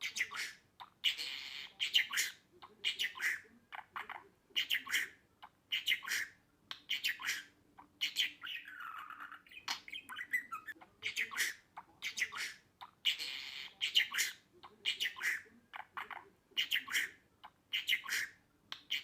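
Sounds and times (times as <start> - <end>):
budgerigar chattering: 0.0 - 19.0
budgerigar warble: 0.0 - 19.0.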